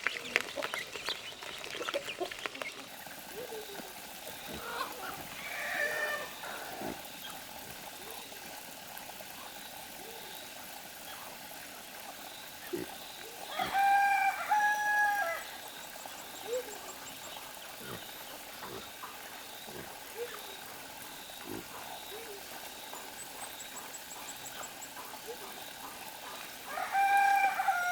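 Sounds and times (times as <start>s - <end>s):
rooster crowing: 4.6s - 6.8s, 13.5s - 15.5s, 26.7s - 27.9s.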